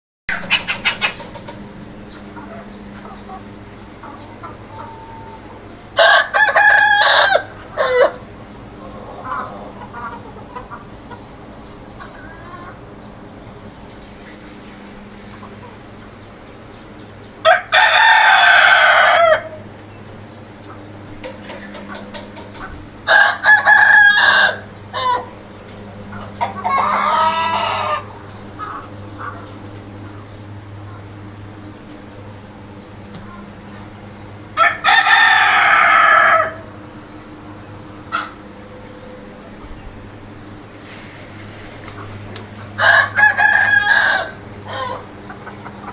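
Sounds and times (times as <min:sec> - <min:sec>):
chicken clucks: 0:00.3 - 0:14.6, 0:15.2 - 0:33.9, 0:37.9 - 0:39.8, 0:41.8 - 0:45.9
rooster crowing: 0:06.0 - 0:08.2, 0:17.4 - 0:19.6, 0:23.0 - 0:25.3, 0:26.4 - 0:28.1, 0:34.6 - 0:36.7, 0:42.8 - 0:45.1.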